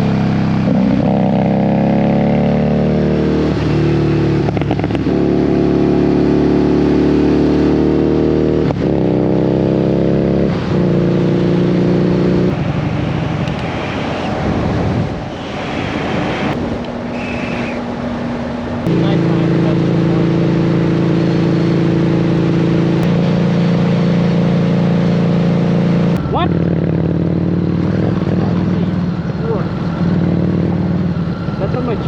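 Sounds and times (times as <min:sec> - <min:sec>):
motorcycle engine accelerating: 0:00.0 - 0:32.0
wind noise: 0:12.3 - 0:18.9, 0:26.2 - 0:32.0.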